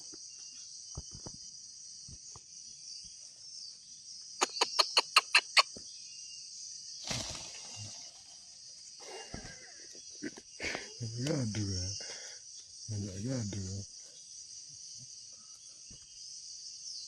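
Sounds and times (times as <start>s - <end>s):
high insect drone: 0.0s - 17.0s
rustle: 7.0s - 9.7s.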